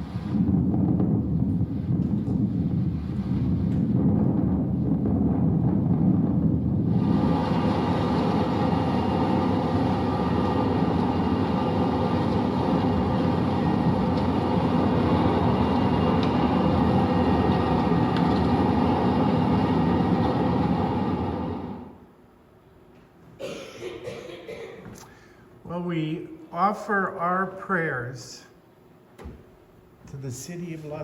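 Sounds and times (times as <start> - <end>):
wildfire rushing roar: 0.0 - 22.0.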